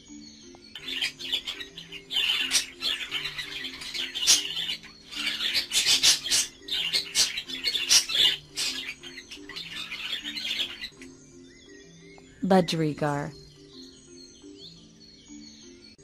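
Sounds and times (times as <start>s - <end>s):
background music: 0.0s - 16.0s
budgerigars chirping: 0.7s - 12.7s.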